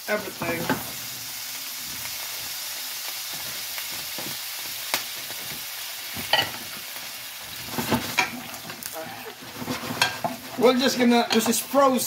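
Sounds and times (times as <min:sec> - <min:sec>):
shrimp sizzling in hot oil: 0:00.0 - 0:12.0
sharp crackle: 0:01.9 - 0:10.2.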